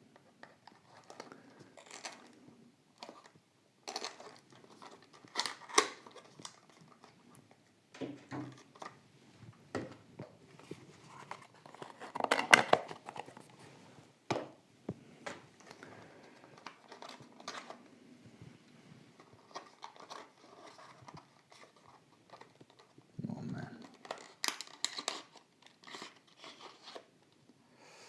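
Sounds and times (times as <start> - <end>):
plastic packaging crinkling: 0.4 - 2.4, 3.0 - 7.6, 10.5 - 13.6, 15.5 - 17.9, 19.1 - 23.0, 23.8 - 27.2.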